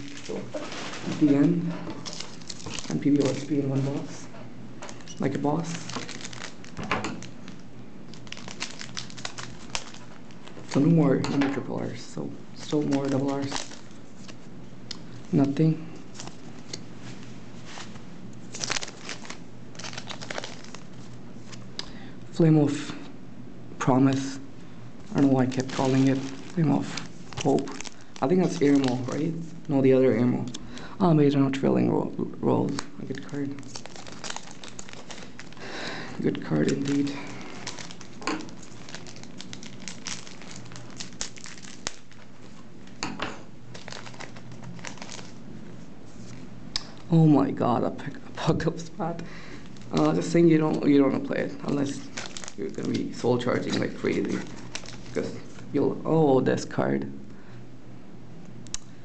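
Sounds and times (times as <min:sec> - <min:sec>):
foil wrappers crinkling: 0:00.0 - 0:04.1, 0:04.8 - 0:11.2, 0:12.6 - 0:14.5, 0:15.2 - 0:21.7, 0:25.0 - 0:29.8, 0:32.6 - 0:43.0, 0:43.7 - 0:45.4, 0:49.3 - 0:55.7
trading cards being handled: 0:00.0 - 0:04.1, 0:04.8 - 0:11.2, 0:12.6 - 0:14.5, 0:15.1 - 0:21.8, 0:25.0 - 0:29.7, 0:32.6 - 0:43.0, 0:43.7 - 0:47.1, 0:51.6 - 0:55.7.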